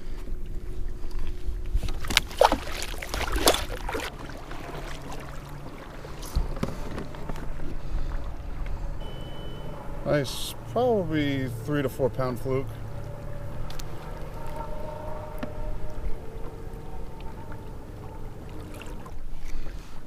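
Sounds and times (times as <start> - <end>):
steady low rumble: 0.0 - 20.0
knocks and rattles on a kayak: 6.0 - 8.8.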